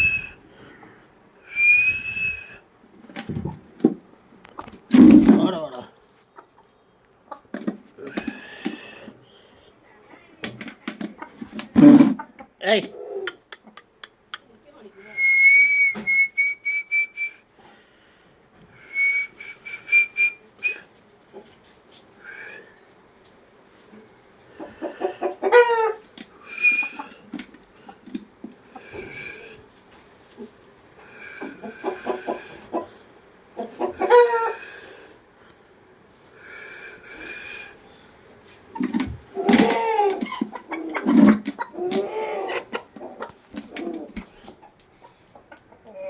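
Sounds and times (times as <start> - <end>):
person whistling: 0.0 - 0.4, 1.5 - 2.6, 15.2 - 17.4, 18.8 - 20.8
chickens clucking: 3.0 - 9.2, 10.2 - 14.5, 23.7 - 35.2, 36.2 - 46.0
loud harsh chicken call: 24.7 - 27.2, 28.8 - 29.6, 33.8 - 35.1, 39.4 - 42.8.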